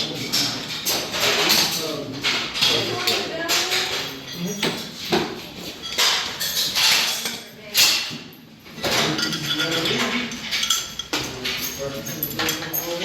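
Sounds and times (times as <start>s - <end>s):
metal parts sliding: 8.8s - 13.0s.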